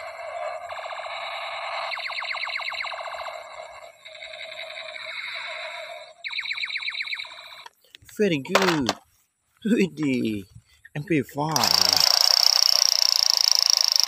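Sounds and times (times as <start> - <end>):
rapid falling electronic zaps: 0.0 - 5.4
warbling electronic tone: 0.0 - 7.7.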